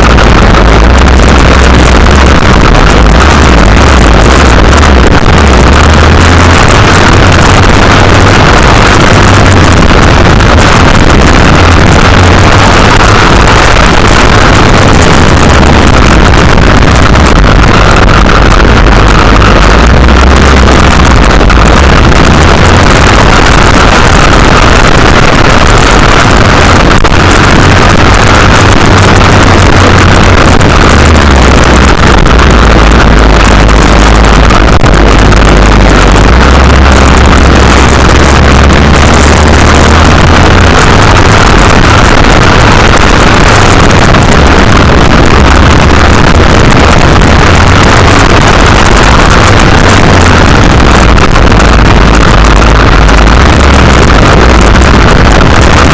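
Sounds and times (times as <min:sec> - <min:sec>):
wind buffeting on microphone: 0:00.0 - 0:55.9.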